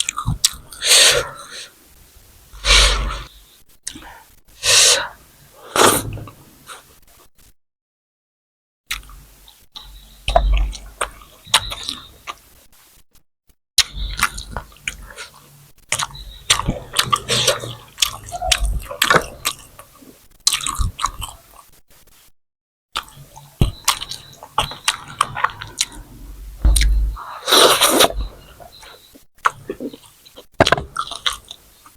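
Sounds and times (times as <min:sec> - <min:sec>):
chewing and biting: 0:14.2 - 0:21.6, 0:23.0 - 0:26.1, 0:29.4 - 0:31.6.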